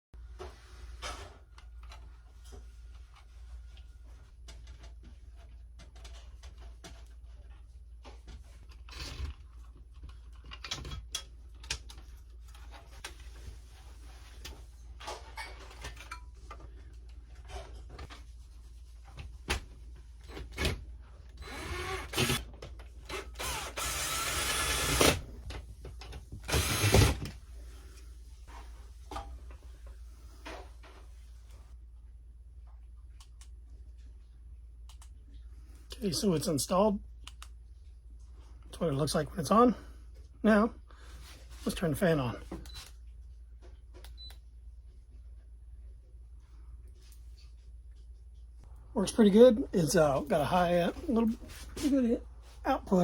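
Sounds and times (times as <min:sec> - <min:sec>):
power drill running: 0:21.4 - 0:22.4, 0:23.1 - 0:25.2, 0:26.4 - 0:27.3.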